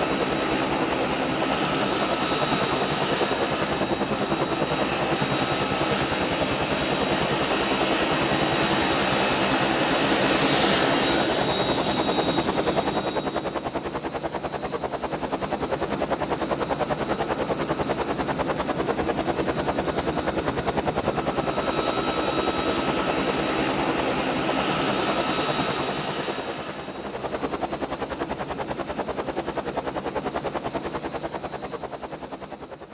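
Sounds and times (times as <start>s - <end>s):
helicopter engine and rotor: 0.0s - 32.9s.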